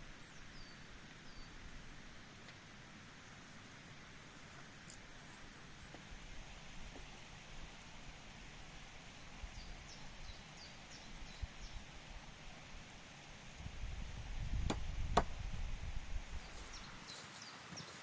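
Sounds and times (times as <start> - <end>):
small birds chirping: 0.0 - 1.7, 9.1 - 12.2, 16.4 - 18.0
sharp knocks: 14.6 - 15.4.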